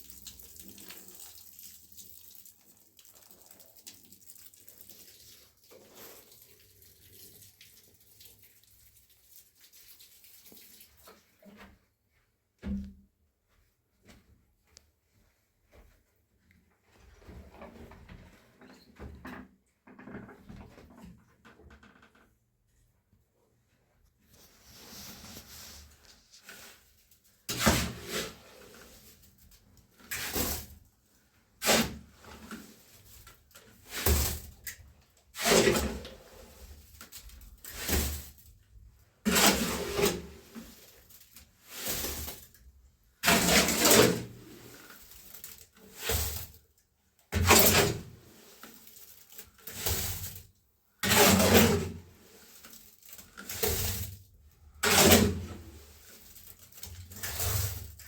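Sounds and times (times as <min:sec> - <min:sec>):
hand tool scraping cement: 0:27.5 - 0:29.1, 0:31.6 - 0:32.8, 0:35.4 - 0:36.8, 0:39.2 - 0:41.1, 0:43.2 - 0:46.5, 0:51.0 - 0:54.1, 0:54.7 - 0:58.0.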